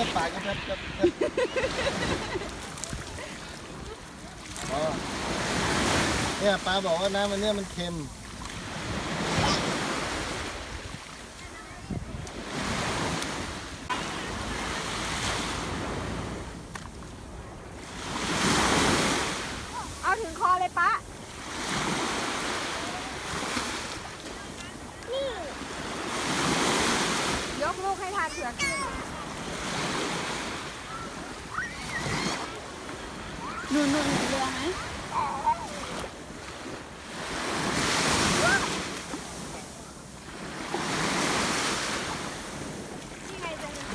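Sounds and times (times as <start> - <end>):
sea waves on sandy beach: 0.0 - 43.9
wind buffeting microphone: 11.6 - 13.9.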